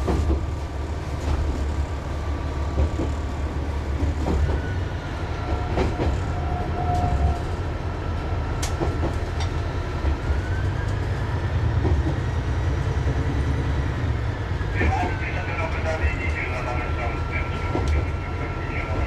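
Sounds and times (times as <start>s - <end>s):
railcar engine drone: 0.0s - 19.0s.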